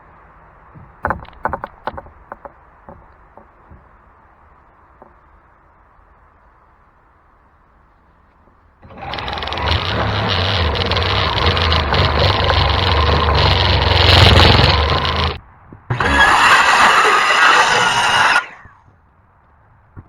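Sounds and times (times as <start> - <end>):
power saw cutting: 8.8 - 18.7.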